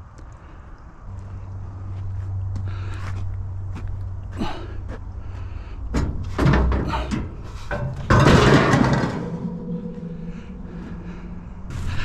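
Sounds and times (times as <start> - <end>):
steady low hum: 0.0 - 12.0
metal clanking and knocking: 5.9 - 11.0
loud metal crash: 7.7 - 11.9.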